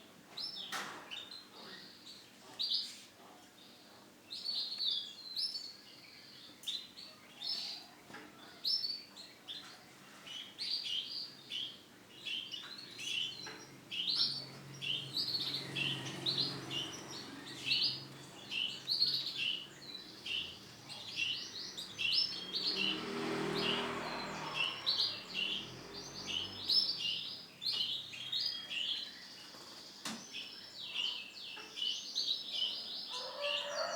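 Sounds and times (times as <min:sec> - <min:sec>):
canary singing: 0:10.3 - 0:29.7.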